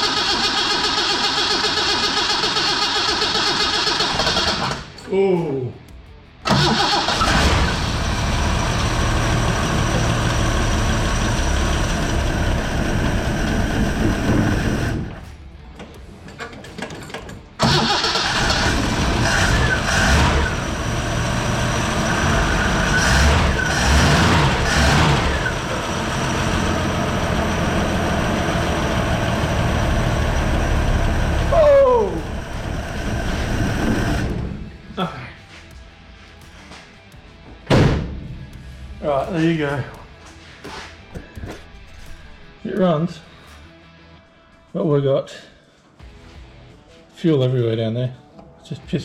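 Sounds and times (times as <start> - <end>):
car engine cranking on starter: 0.0 - 5.0, 6.5 - 15.3, 17.6 - 20.9, 21.5 - 31.5.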